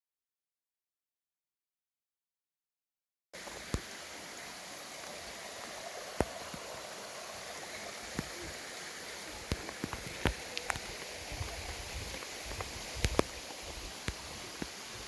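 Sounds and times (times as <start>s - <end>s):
flowing water rushing: 3.4s - 15.0s.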